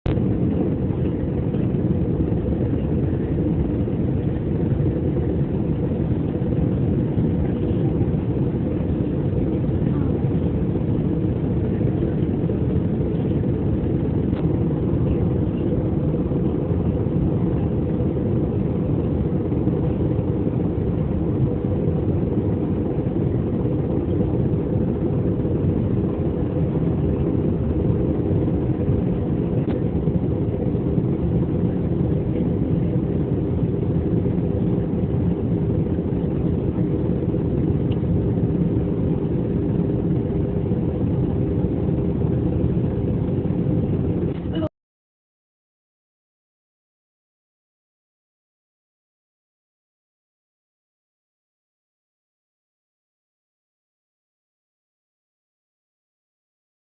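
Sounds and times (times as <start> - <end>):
airplane engine drone: 0.1 - 44.7.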